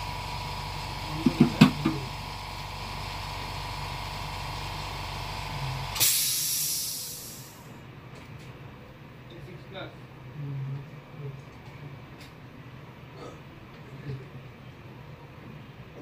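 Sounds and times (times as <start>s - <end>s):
rework station humming and whining: 0.0s - 16.0s
hissing air rush: 6.0s - 7.7s.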